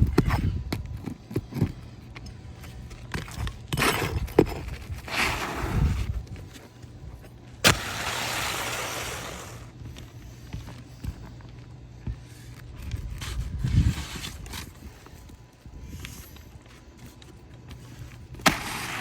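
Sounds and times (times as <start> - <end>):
roof snake scraping: 7.6 - 9.7, 18.4 - 19.0.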